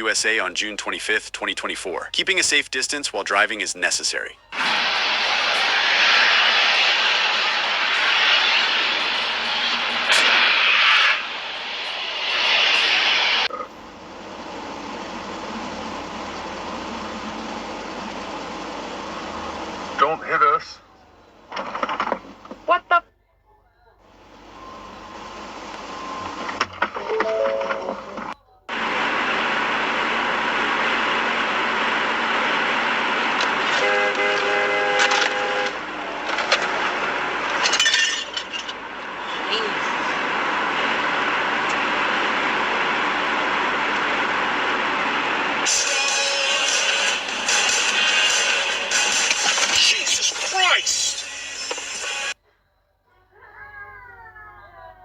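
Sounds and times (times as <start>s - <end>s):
road and traffic noise: 0.0s - 23.0s, 24.0s - 52.4s
steady vehicle hum: 0.0s - 23.0s, 24.0s - 52.4s
loud rushing vehicle noise: 4.6s - 20.2s, 28.7s - 50.6s
vehicle horn: 33.6s - 36.0s.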